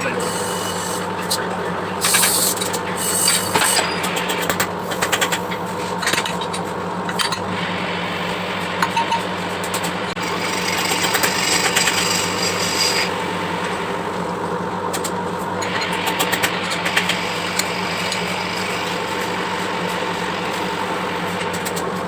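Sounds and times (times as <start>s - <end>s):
lathe tool scraping brake drum: 0.0s - 4.2s, 10.1s - 13.8s, 15.6s - 22.0s
lathe motor humming: 0.0s - 6.0s, 6.8s - 22.0s.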